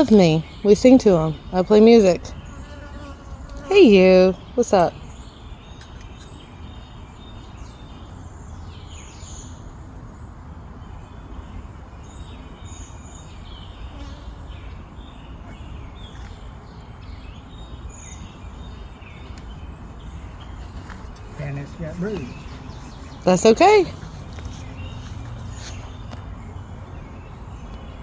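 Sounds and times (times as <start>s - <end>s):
honeybees buzzing: 0.0s - 4.9s, 19.9s - 26.2s
bird chirps: 12.0s - 28.0s.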